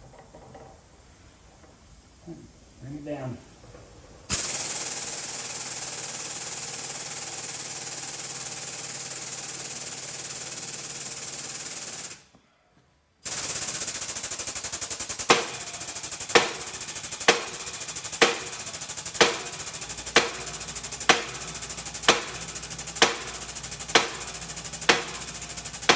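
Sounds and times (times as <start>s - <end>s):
air pump chattering: 4.3s - 12.2s, 13.2s - 25.9s.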